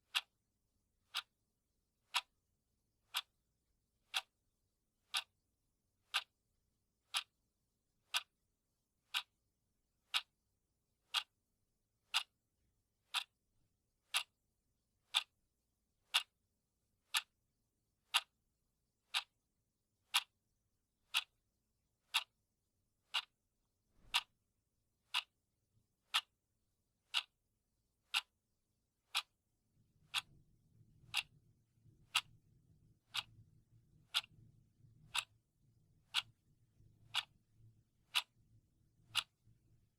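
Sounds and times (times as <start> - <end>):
clock ticking: 0.0 - 0.3, 1.0 - 1.3, 2.1 - 2.4, 3.1 - 3.4, 4.0 - 4.4, 5.0 - 5.3, 6.0 - 6.3, 7.0 - 7.4, 8.1 - 8.3, 9.1 - 9.4, 10.0 - 10.3, 11.1 - 11.4, 12.1 - 12.4, 13.0 - 13.3, 14.1 - 14.4, 15.1 - 15.4, 16.1 - 16.4, 17.1 - 17.4, 18.1 - 18.4, 19.0 - 19.4, 20.1 - 20.4, 21.1 - 21.4, 22.1 - 22.4, 23.0 - 23.4, 24.0 - 24.4, 25.0 - 25.4, 26.1 - 26.4, 27.0 - 27.4, 28.1 - 28.4, 29.1 - 29.4, 30.1 - 30.4, 31.1 - 31.4, 32.0 - 32.3, 33.0 - 33.4, 34.1 - 35.4, 36.1 - 36.4, 37.0 - 37.4, 38.1 - 38.4, 39.0 - 39.5.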